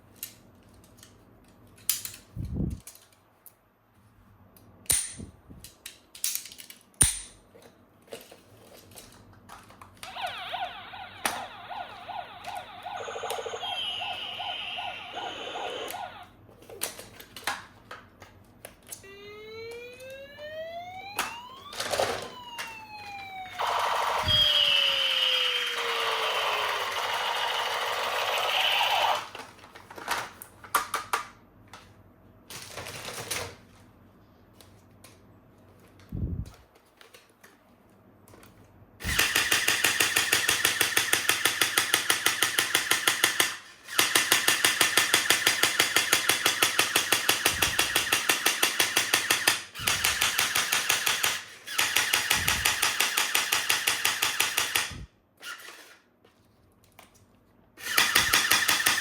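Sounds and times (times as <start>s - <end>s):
toy gun firing sound: 10.0s - 16.3s, 21.0s - 29.4s, 39.0s - 55.9s, 57.8s - 59.0s
rising and falling siren tone: 10.1s - 16.4s, 19.0s - 29.3s.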